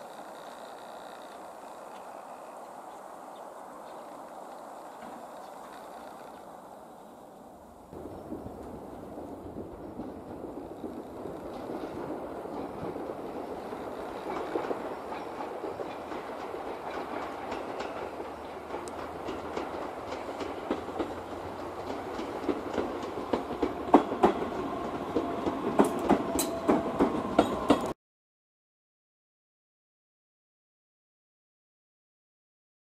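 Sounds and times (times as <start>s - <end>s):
train squeal: 0.0s - 2.7s, 10.8s - 27.9s
train wheels clacking: 8.0s - 28.0s.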